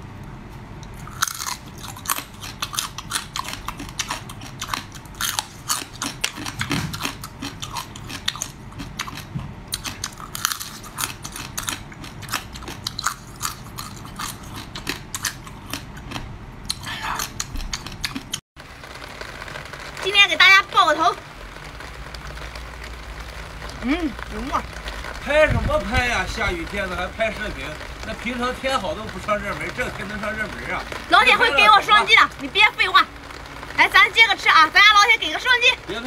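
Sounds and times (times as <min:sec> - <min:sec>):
crab shells crunching while chewed: 0:00.7 - 0:20.0.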